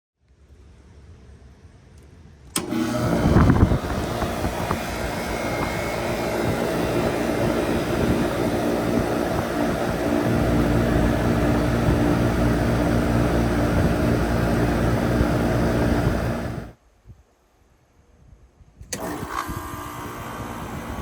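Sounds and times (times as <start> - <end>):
air conditioner starting click: 2.5 - 16.7, 18.9 - 21.0
air conditioner loud hum: 2.5 - 16.8.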